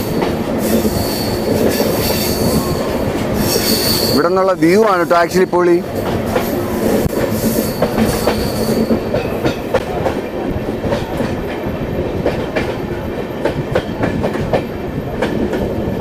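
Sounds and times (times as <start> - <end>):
train rumbling on rails: 0.0 - 16.0
faint high wheel squeal: 2.1 - 4.3.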